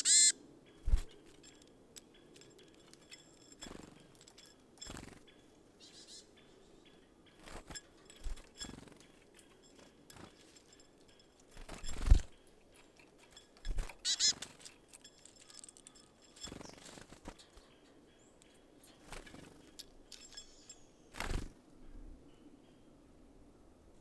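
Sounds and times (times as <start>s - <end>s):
birds knocking and fluttering: 0.0s - 5.8s, 6.4s - 21.6s.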